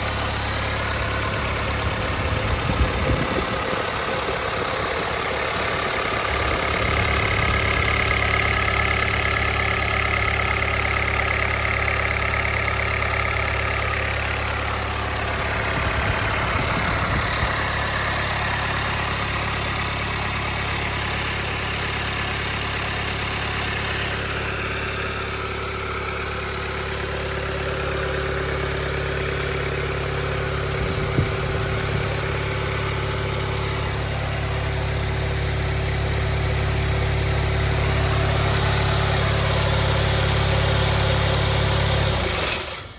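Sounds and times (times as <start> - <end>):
diesel engine idling: 0.0 - 42.9.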